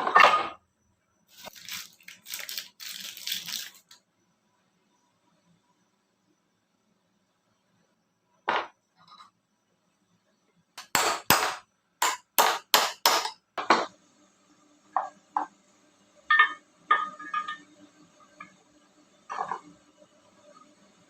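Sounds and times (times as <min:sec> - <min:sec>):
hammer striking metal: 0:10.8 - 0:13.9.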